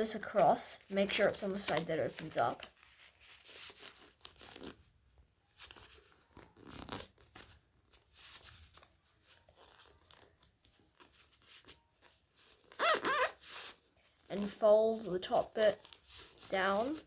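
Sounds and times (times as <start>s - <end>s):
paper rustling and crinkling: 0.1s - 17.0s.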